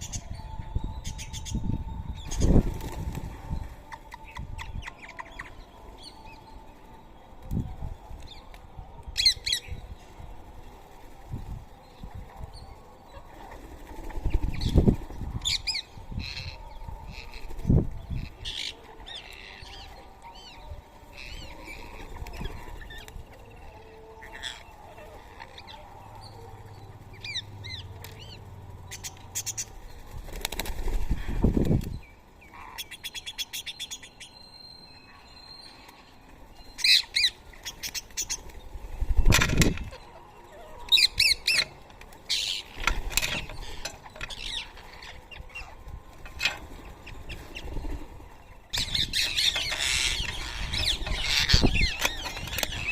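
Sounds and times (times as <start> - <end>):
parrots chirping and calling: 36.7 - 38.4, 39.6 - 45.8, 48.7 - 52.9.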